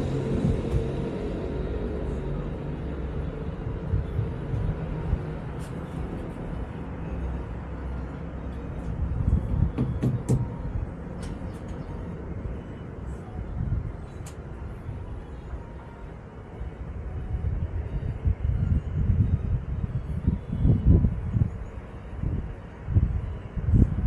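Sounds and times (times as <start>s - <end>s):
tram wheels rumbling on rail: 0.0s - 24.0s
sharp clicks and knocks: 9.8s - 10.5s.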